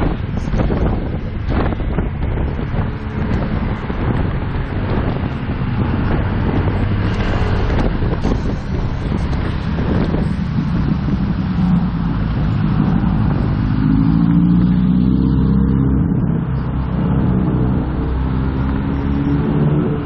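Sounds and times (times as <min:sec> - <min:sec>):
motorcycle engine running: 0:00.0 - 0:14.2
wind and road noise: 0:00.0 - 0:20.0.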